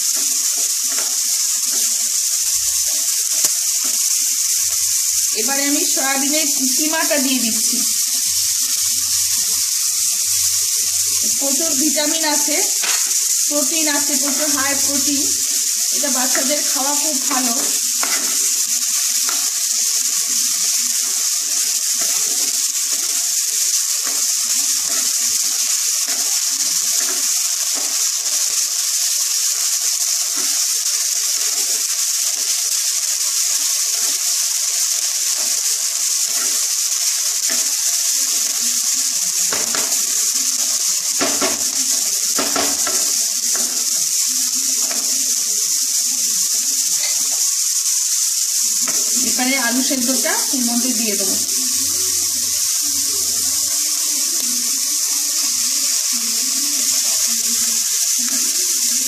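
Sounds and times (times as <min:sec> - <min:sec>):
vegetables sizzling in pan: 0:00.0 - 0:59.0.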